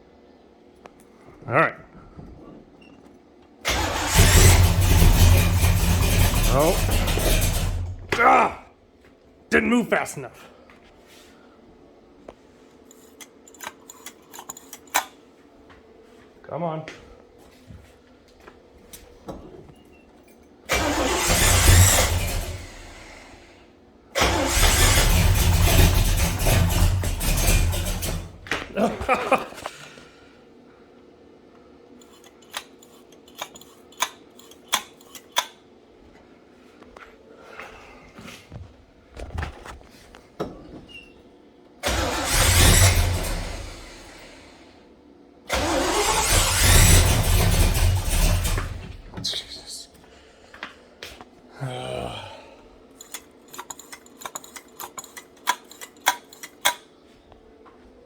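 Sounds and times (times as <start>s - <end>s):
engine firing up and running: 3.7s - 8.2s, 20.7s - 23.6s, 24.2s - 29.7s, 41.8s - 44.7s, 45.5s - 49.2s.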